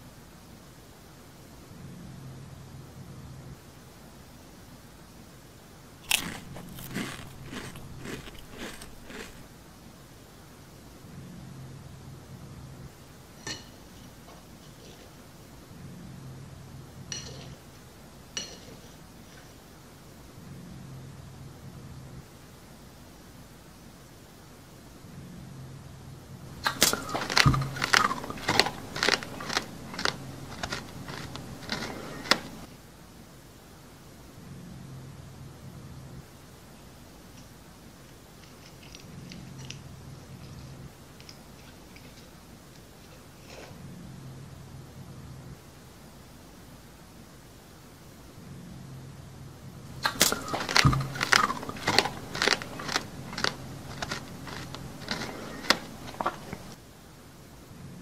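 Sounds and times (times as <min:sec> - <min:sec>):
crunchy chewing: 0:06.0 - 0:09.6, 0:26.6 - 0:32.7, 0:38.4 - 0:43.8, 0:49.9 - 0:56.8.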